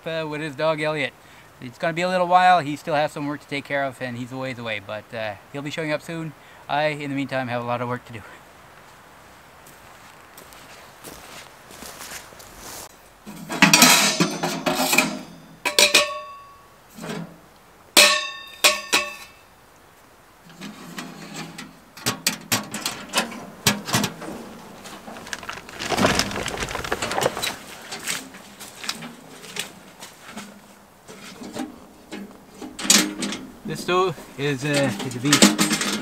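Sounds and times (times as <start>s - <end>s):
scraping rustle: 9.7s - 15.3s, 20.0s - 36.0s
metallic clanks: 13.3s - 17.3s, 18.0s - 19.4s, 34.7s - 36.0s.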